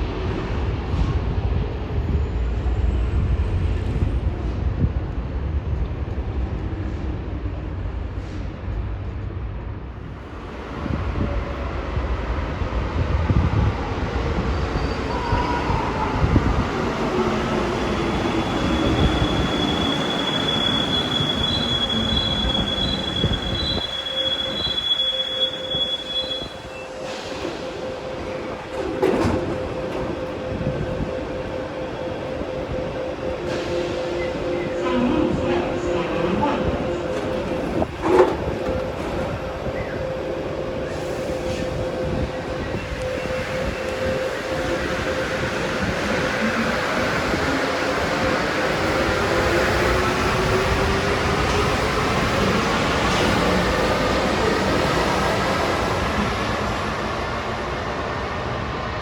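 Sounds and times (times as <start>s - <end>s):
train braking whine: 14.4s - 57.9s
high steady squeal: 17.7s - 28.6s
train running rumble: 26.4s - 58.8s.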